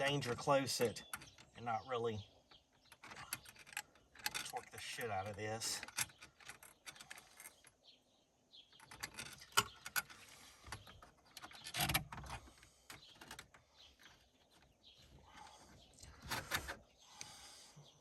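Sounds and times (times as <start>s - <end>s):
wrench clicking and scraping: 2.9s - 4.6s.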